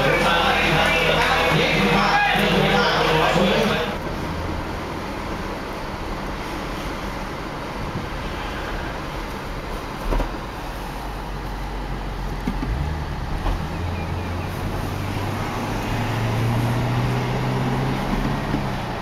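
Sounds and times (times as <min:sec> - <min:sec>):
road noise: 0:00.0 - 0:19.0
car engine from inside cabin: 0:09.2 - 0:19.0.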